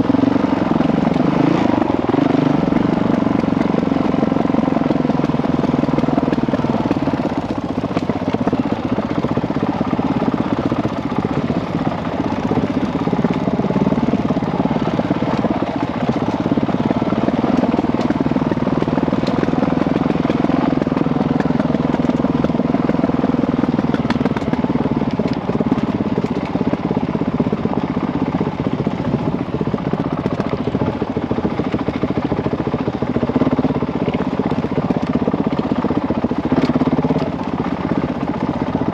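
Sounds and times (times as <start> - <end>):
dirt bike engine running: 0.0 - 38.9.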